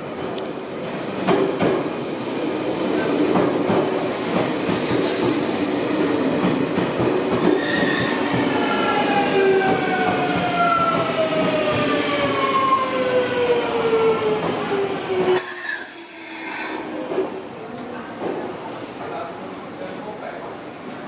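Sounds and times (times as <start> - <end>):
train wheels rumbling on rails: 0.1 - 15.5.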